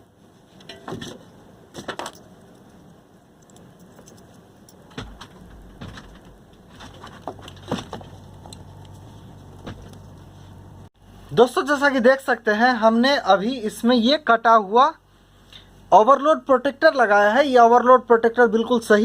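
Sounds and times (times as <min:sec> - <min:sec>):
low hum: 0:00.0 - 0:11.4
small parts clicking and knocking: 0:01.8 - 0:10.2.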